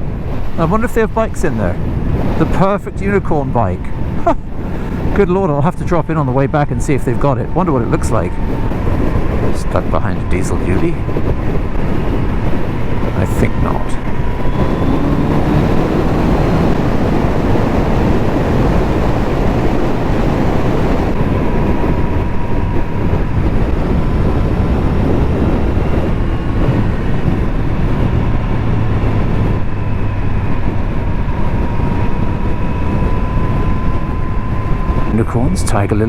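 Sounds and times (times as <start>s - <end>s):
road noise: 0.0s - 36.0s
wind rush: 0.0s - 36.0s
motorcycle engine running: 14.0s - 35.0s.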